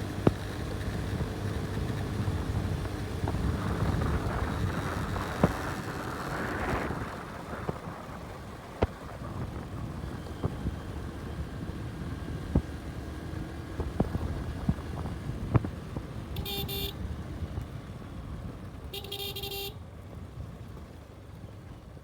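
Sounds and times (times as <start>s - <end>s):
road and wind noise: 0.0s - 22.0s
vehicle horn tooting: 16.3s - 17.0s, 18.9s - 19.8s.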